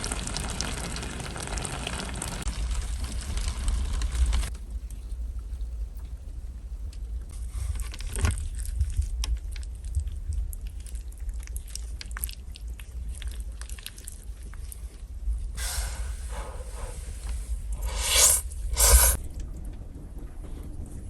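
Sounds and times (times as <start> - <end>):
steady low rumble: 15.2 - 21.0.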